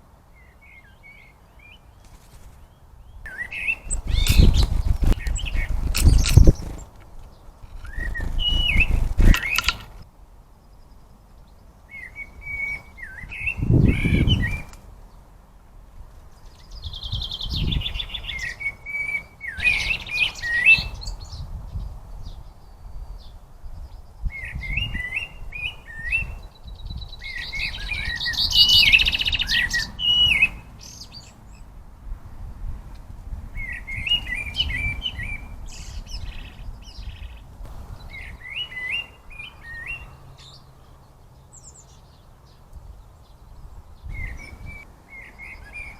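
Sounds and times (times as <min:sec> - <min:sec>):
small birds chirping: 0:00.0 - 0:15.3, 0:16.1 - 0:31.7, 0:33.6 - 0:45.9
buzzy rattling bird calls: 0:03.5 - 0:07.0, 0:07.6 - 0:10.0, 0:19.6 - 0:21.2
low rustling thumps: 0:04.0 - 0:06.9.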